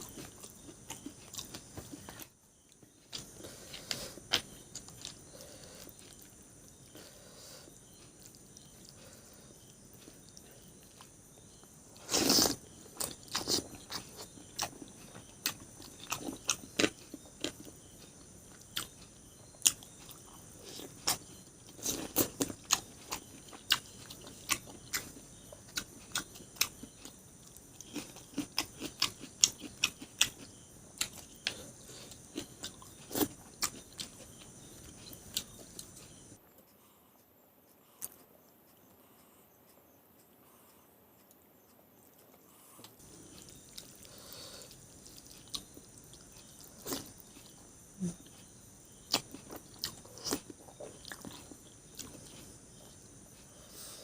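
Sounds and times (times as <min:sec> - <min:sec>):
chewing and mouth clicks: 0:00.0 - 0:07.0, 0:07.8 - 0:36.4, 0:38.0 - 0:39.0, 0:42.0 - 0:53.6.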